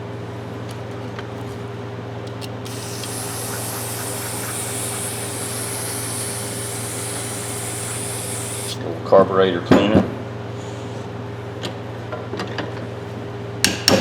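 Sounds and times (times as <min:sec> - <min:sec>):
steady low hum: 0:02.4 - 0:08.8
aerosol can spraying: 0:02.5 - 0:08.8.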